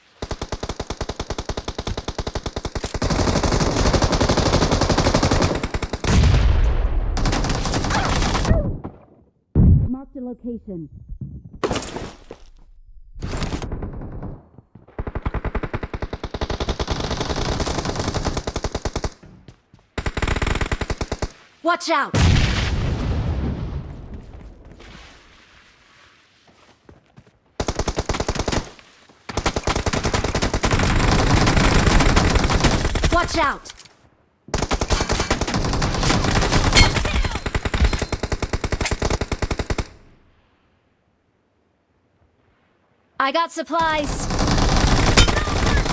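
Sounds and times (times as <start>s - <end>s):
video game automatic gunfire: 0.2s - 6.3s, 13.2s - 19.2s, 29.3s - 33.4s, 34.5s - 39.9s, 43.9s - 45.9s.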